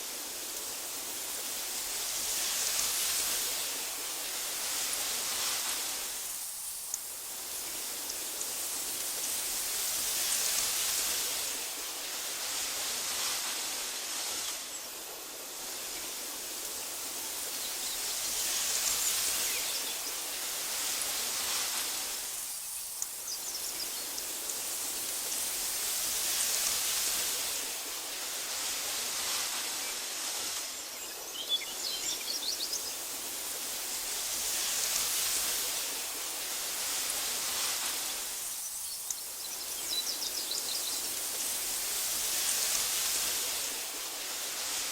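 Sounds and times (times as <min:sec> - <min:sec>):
wind rushing through grass: 0:00.0 - 0:44.9
faint bird chirps: 0:37.9 - 0:41.6.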